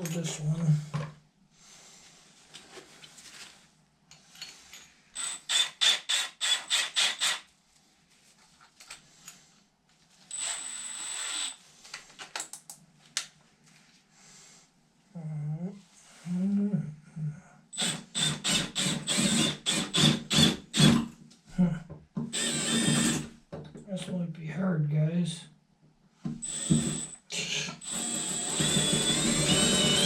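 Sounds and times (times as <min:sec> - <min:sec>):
small drill drilling: 0:05.2 - 0:07.5, 0:10.3 - 0:11.6, 0:17.8 - 0:21.0, 0:22.3 - 0:23.3, 0:26.4 - 0:30.0.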